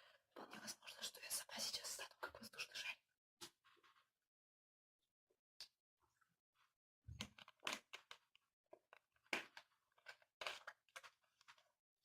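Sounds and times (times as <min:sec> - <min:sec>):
crinkling: 0:07.2 - 0:11.7.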